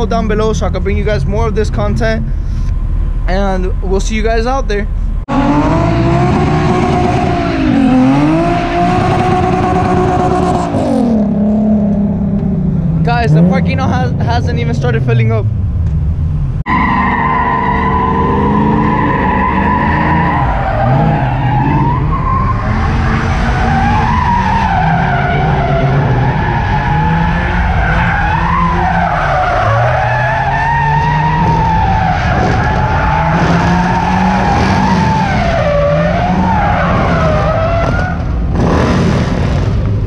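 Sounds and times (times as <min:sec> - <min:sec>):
car engine at high revs: 0:05.2 - 0:40.0.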